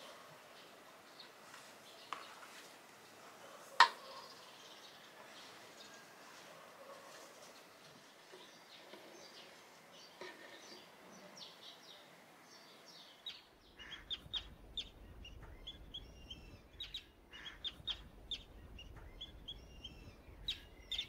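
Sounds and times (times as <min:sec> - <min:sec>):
small birds chirping: 0:00.0 - 0:21.0
low steady hum: 0:13.5 - 0:21.0.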